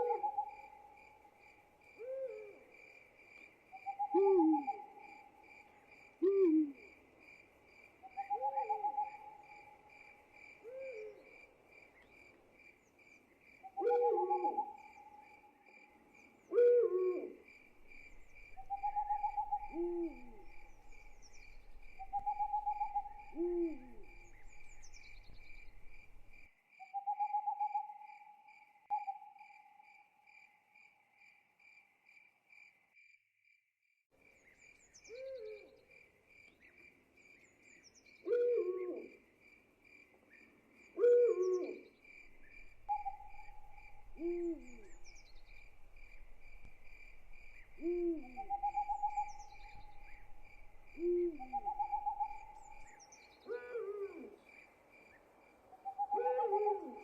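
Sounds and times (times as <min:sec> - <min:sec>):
owl hooting: 0:00.0 - 0:01.0, 0:02.0 - 0:02.6, 0:03.8 - 0:05.4, 0:06.2 - 0:06.9, 0:08.1 - 0:09.9, 0:10.6 - 0:11.3, 0:13.7 - 0:15.3, 0:16.5 - 0:28.0, 0:35.1 - 0:35.7, 0:38.2 - 0:39.2, 0:41.0 - 0:54.4, 0:55.8 - 0:57.0
crickets chirping: 0:00.0 - 0:33.2, 0:34.2 - 0:57.0.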